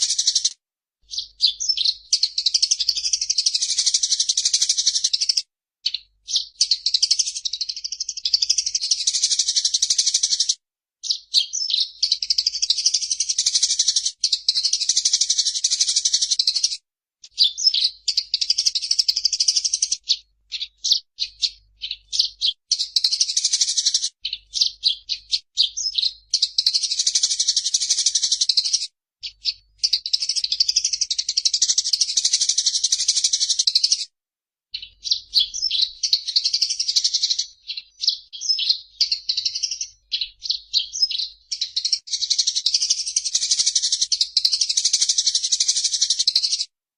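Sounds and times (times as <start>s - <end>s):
sparrow chattering: 0.0s - 34.1s, 34.8s - 46.7s.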